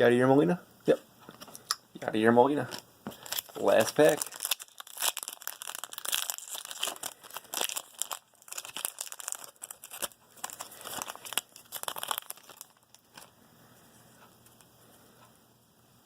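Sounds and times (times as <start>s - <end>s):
plastic wrapper tearing and crinkling: 2.6s - 13.3s.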